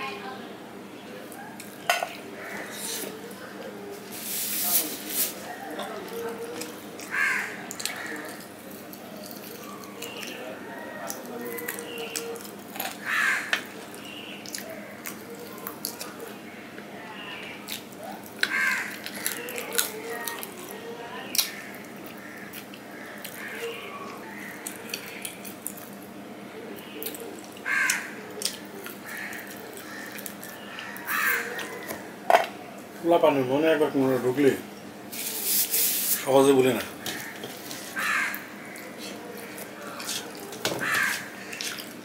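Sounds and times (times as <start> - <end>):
wet chewing and lip smacks: 13.8 - 16.4, 21.4 - 26.1, 28.3 - 31.8, 38.3 - 42.0.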